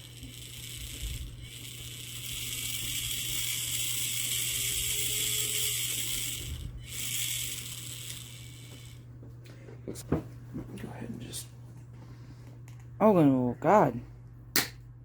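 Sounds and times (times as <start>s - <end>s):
toy car motor whirring: 0.0s - 9.0s.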